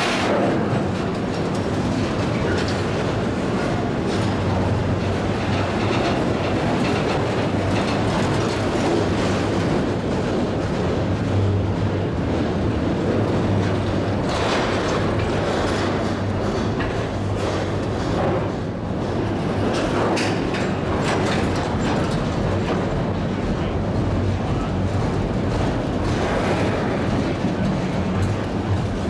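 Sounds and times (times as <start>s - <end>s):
freight train cars rolling past: 0.0s - 29.0s
steel wheels rumbling on rails: 0.0s - 29.0s
train cars clattering: 0.0s - 29.0s.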